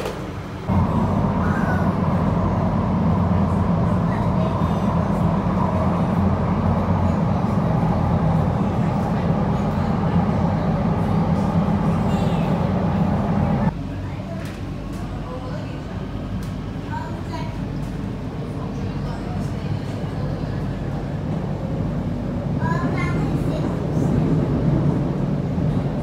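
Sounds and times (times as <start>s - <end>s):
train rumble inside carriage: 0.0s - 26.0s.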